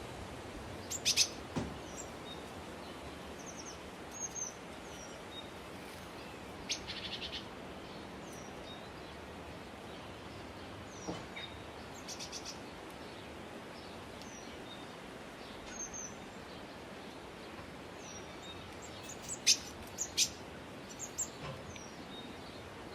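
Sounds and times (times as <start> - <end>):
background hiss: 0.0 - 22.9
birds chirping: 0.7 - 22.9
sharp bird calls: 0.8 - 2.2.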